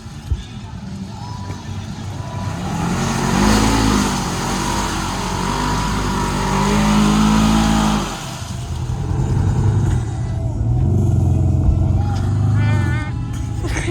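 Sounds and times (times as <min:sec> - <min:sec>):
utility vehicle engine revving: 0:00.0 - 0:13.9.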